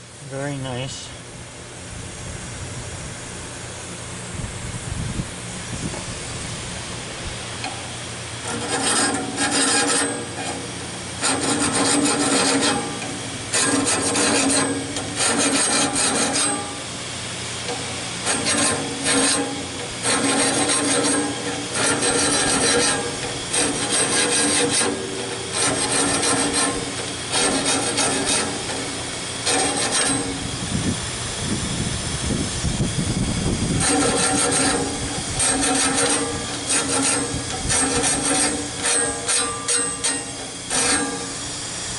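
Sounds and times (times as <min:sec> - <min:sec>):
file scraping on saw blade: 0:08.4 - 0:16.9, 0:17.7 - 0:30.5, 0:33.8 - 0:41.5.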